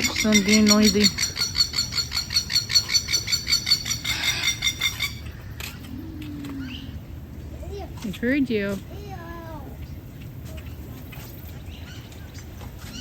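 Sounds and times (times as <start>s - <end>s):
birds chattering: 0.0s - 13.0s.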